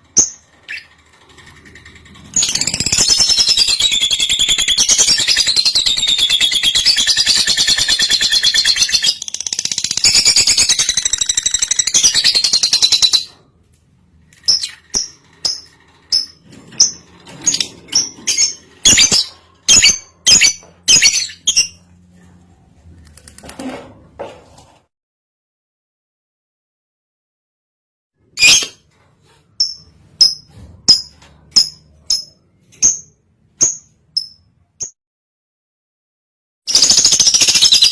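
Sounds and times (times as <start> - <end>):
sharp high bird chirps: 2.4 - 13.3.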